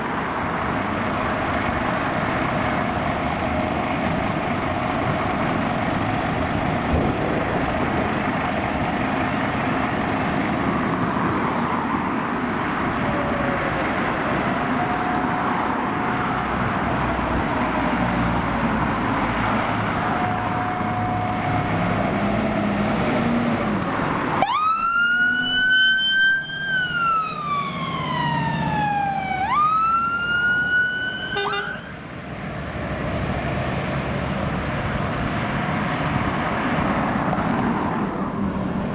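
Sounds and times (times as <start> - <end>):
fire engine siren wailing: 0.0 - 18.0, 18.6 - 32.1
engine and road noise: 0.0 - 38.9
distant siren wailing: 13.0 - 16.2, 19.8 - 22.0, 24.4 - 32.0.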